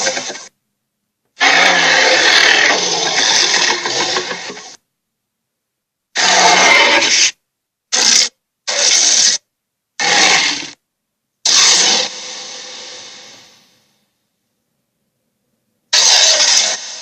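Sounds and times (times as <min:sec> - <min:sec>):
noisy sound effect bursts: 0:11.4 - 0:14.0, 0:16.0 - 0:17.0.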